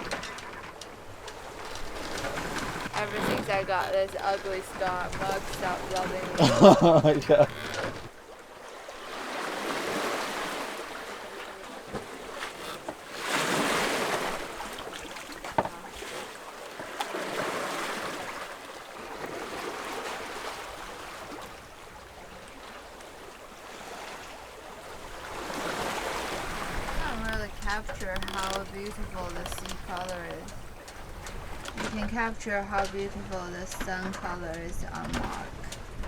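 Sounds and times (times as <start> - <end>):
sea water washing along hull: 0.0 - 36.0.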